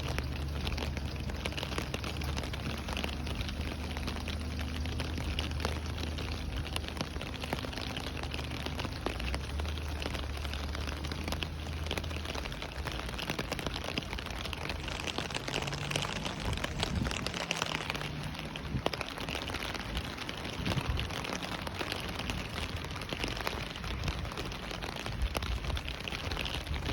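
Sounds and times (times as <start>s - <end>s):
rain falling: 0.0s - 26.9s.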